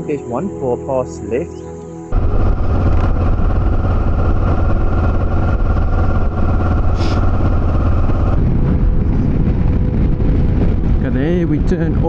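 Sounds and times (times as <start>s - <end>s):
motorcycle engine running: 2.1s - 11.0s.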